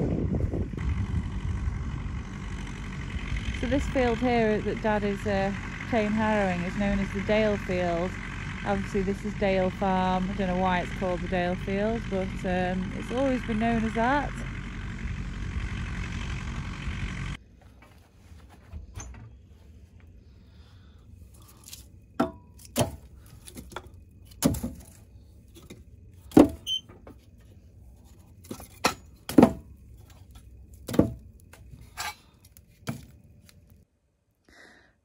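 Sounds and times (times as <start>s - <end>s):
faint low rumble: 0.0s - 22.2s.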